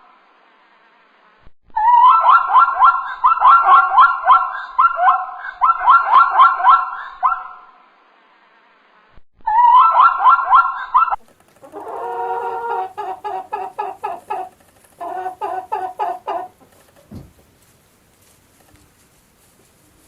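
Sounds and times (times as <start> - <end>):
chicken clucking: 9.6 - 17.6.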